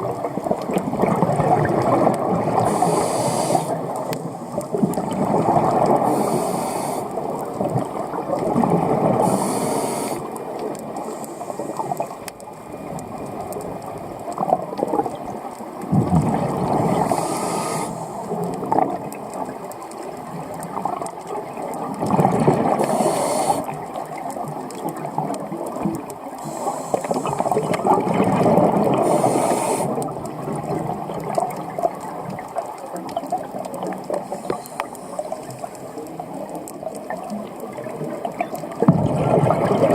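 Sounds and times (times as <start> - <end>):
gurgling exhaled bubbles: 0.0 - 39.9
regulator inhale hiss: 2.6 - 4.6, 6.0 - 7.3, 9.2 - 10.4, 11.0 - 12.2, 17.0 - 18.3, 22.8 - 23.8, 26.4 - 27.6, 29.0 - 30.1, 34.2 - 35.8.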